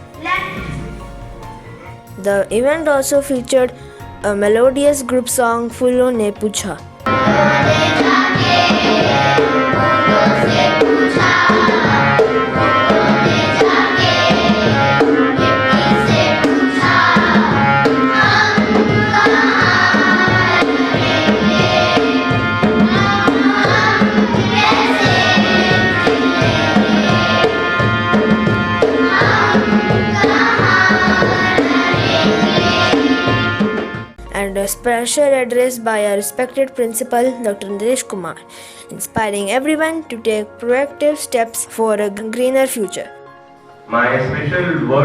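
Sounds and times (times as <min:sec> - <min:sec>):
children singing: 0:00.0 - 0:02.3, 0:07.1 - 0:34.8
tabla and instrumental accompaniment: 0:00.0 - 0:02.6, 0:06.4 - 0:35.3.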